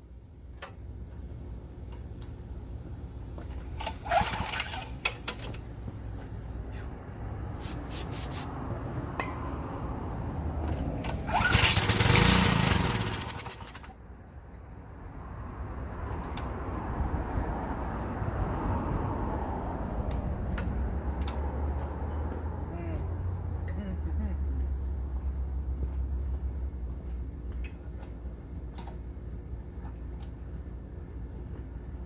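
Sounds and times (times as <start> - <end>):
small gas engine running: 3.8 - 5.4, 11.0 - 14.0.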